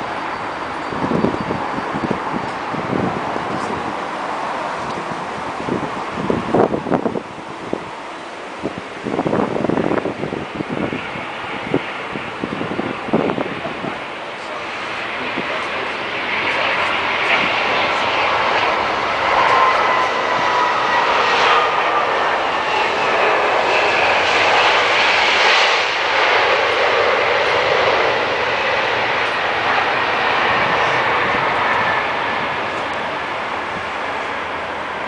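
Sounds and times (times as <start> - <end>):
airliner jet rush: 0.0 - 35.0
faint engine whine: 0.0 - 35.0.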